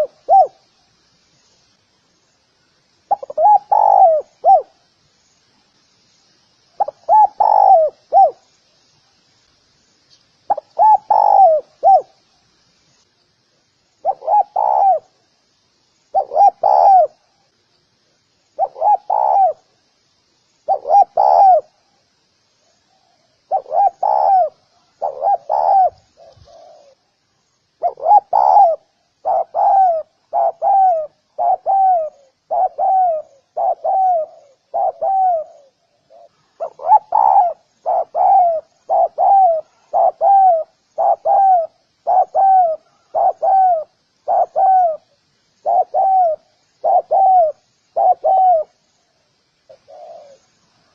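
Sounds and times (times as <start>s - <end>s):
dove cooing: 0.0s - 0.7s, 3.1s - 4.8s, 6.8s - 8.5s, 10.5s - 12.2s, 14.0s - 15.2s, 16.1s - 17.3s, 18.6s - 19.7s, 20.7s - 21.8s, 22.9s - 27.1s, 27.8s - 48.8s, 49.7s - 50.5s.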